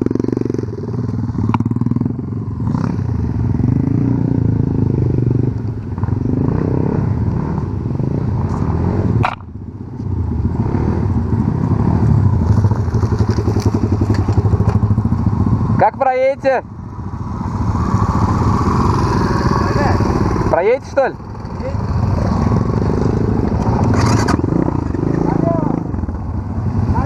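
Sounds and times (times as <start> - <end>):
sharp click: 9.2 - 9.5
off-road vehicle engine revving: 10.5 - 14.9, 17.4 - 26.1.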